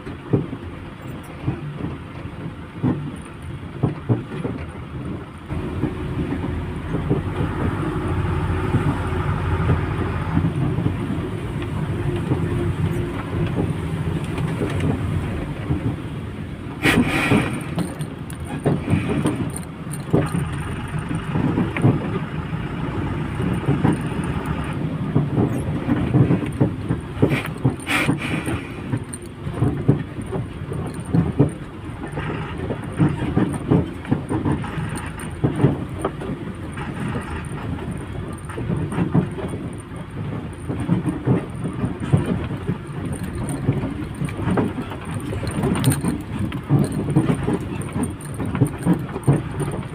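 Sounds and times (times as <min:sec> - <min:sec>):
knocks and rattles: 0:00.0 - 0:49.9
lorry engine and road noise: 0:00.0 - 0:49.9
sharp clatters: 0:23.2 - 0:49.9.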